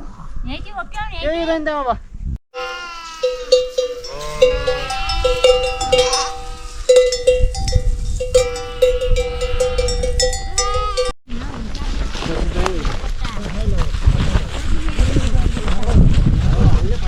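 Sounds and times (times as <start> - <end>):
flock bleating: 2.6 - 7.5, 8.3 - 11.1
livestock bells clanking: 2.6 - 11.2.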